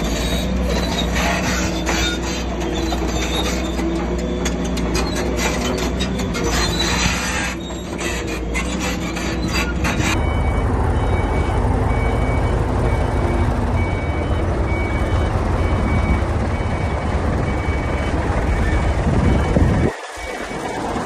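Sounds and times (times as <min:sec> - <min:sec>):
diesel engine rumbling: 0:00.0 - 0:21.0
reversing alarm beeping: 0:08.7 - 0:21.0.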